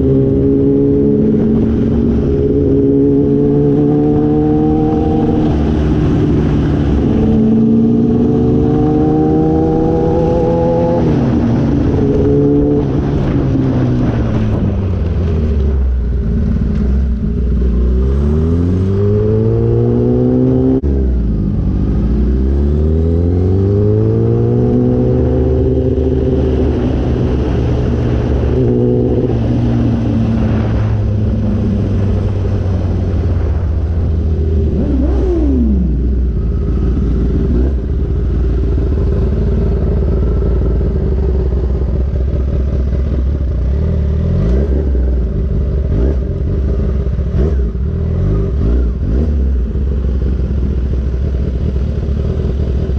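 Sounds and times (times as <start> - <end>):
wind rush: 0.0 - 20.7, 23.4 - 43.3
motorcycle engine revving: 0.0 - 52.9.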